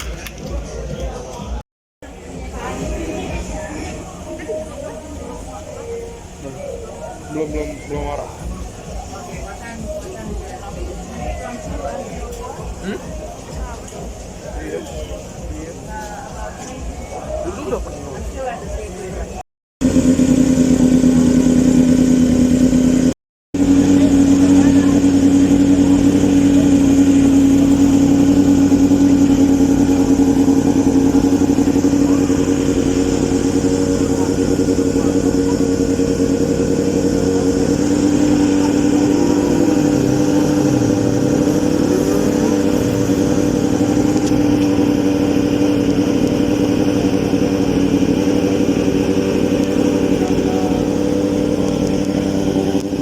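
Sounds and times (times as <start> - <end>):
steady motor hum: 19.3 - 53.0.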